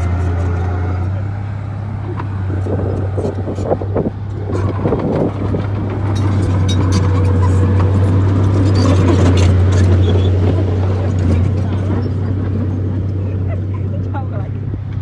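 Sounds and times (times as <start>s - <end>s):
bulldozer diesel engine drone: 0.0s - 15.0s
metallic clanks and knocks: 4.5s - 12.8s.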